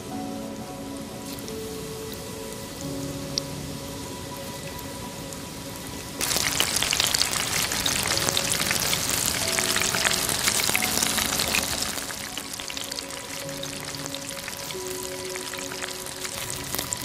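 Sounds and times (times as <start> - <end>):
food sizzling in hot oil: 6.2 - 17.0.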